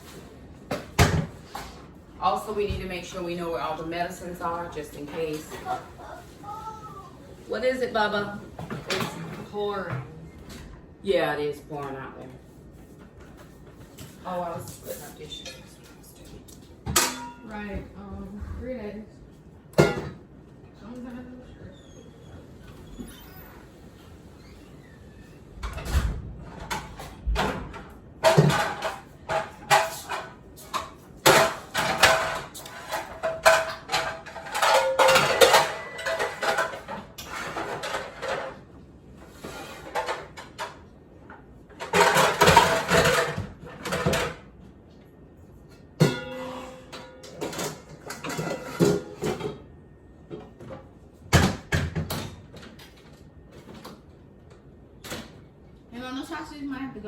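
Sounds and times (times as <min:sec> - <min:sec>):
dishes and glassware clattering: 0:08.6 - 0:10.1, 0:16.8 - 0:17.7, 0:19.7 - 0:20.3, 0:26.6 - 0:38.7, 0:41.8 - 0:44.5, 0:46.0 - 0:49.7.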